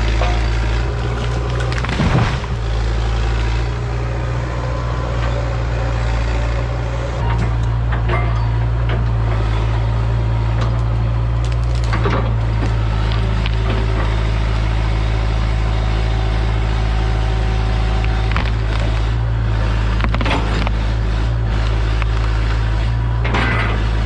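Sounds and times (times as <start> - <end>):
sharp knocks and cracks: 0.0 - 2.9, 10.6 - 14.1, 19.9 - 21.0
excavator diesel engine: 0.0 - 24.0.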